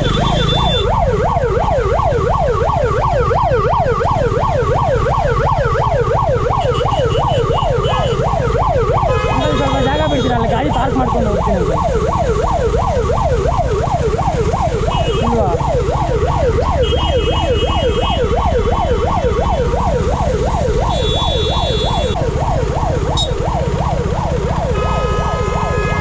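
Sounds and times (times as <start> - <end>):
ambulance siren yelping: 0.0 - 26.0
road and engine rumble: 0.0 - 26.0.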